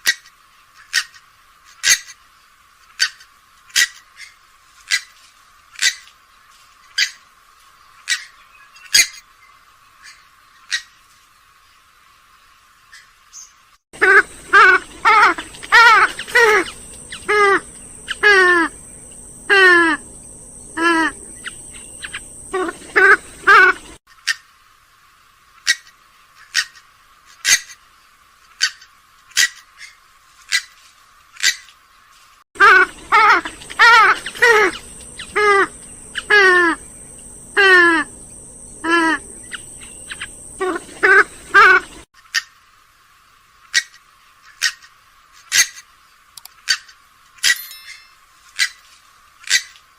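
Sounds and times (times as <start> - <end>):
swamphen wavering calls: 12.9 - 24.0, 32.6 - 42.0.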